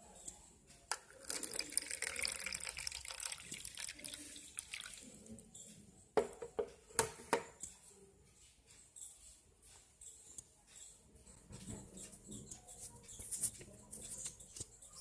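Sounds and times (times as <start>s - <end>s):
water pouring into cup: 0.9s - 5.4s.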